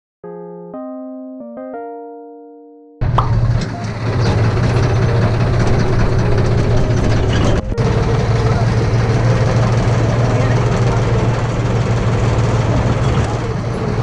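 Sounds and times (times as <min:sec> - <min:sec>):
electric piano music: 0:00.2 - 0:14.0
tractor engine humming: 0:03.0 - 0:14.0.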